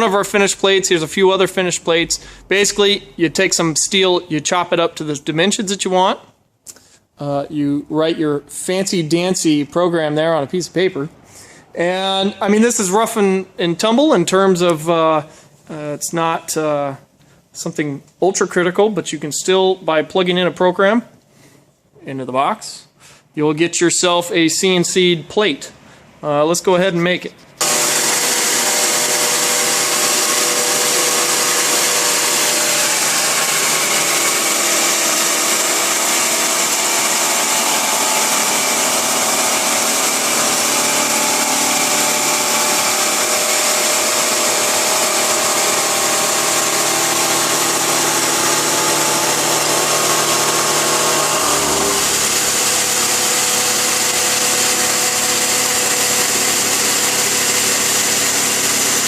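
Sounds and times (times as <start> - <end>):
milling machine cutting steel: 27.6 - 59.0.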